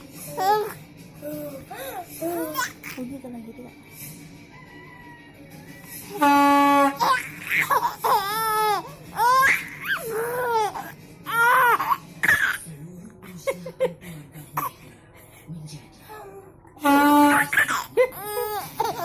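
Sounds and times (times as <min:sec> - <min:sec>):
trumpet note: 0:06.2 - 0:07.0, 0:16.8 - 0:17.5
baby squealing: 0:07.0 - 0:12.6, 0:17.1 - 0:19.0.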